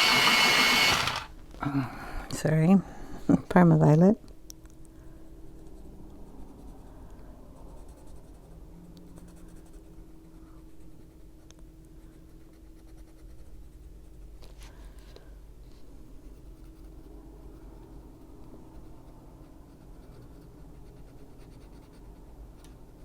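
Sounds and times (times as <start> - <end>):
colored pencil scratching on paper: 7.6 - 11.4, 12.0 - 14.3, 16.2 - 23.0.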